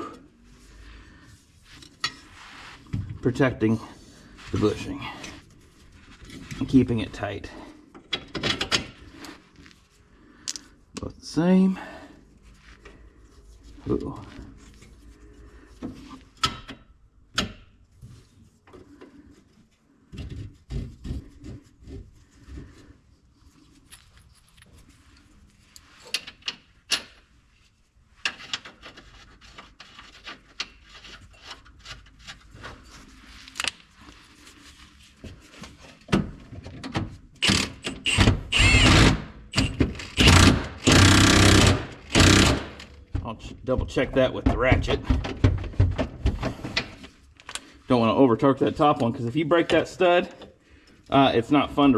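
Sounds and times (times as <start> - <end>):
impact wrench bursts: 37.4 - 42.9.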